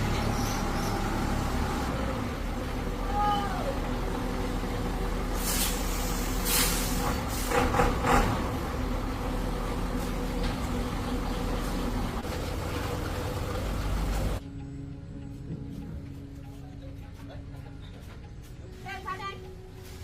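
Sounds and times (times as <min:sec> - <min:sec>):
truck engine running: 0:00.0 - 0:14.4
hiss of released air: 0:05.3 - 0:07.6.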